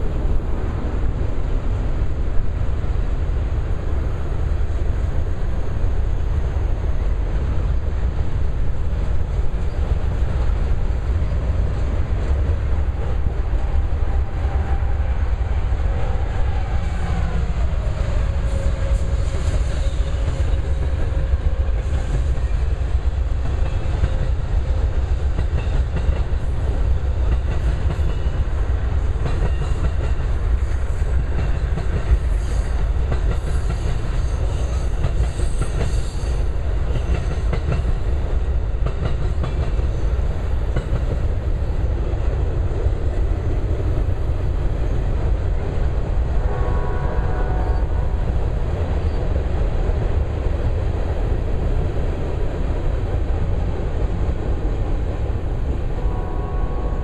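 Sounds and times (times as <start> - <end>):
steel wheels rumbling on rail: 0.0 - 57.0.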